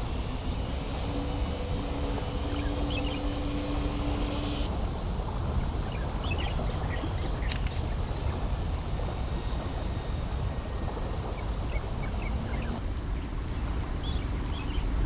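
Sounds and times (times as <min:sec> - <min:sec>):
faint high chirps: 0:00.0 - 0:04.7
wind buffeting microphone: 0:00.0 - 0:15.0.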